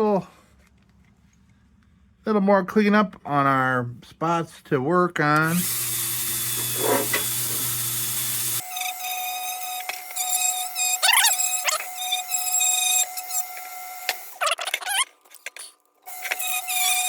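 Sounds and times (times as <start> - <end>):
small electric power tool running: 5.5 - 14.8, 16.0 - 17.0
thin high whine with chirps: 8.4 - 14.4, 16.1 - 17.0.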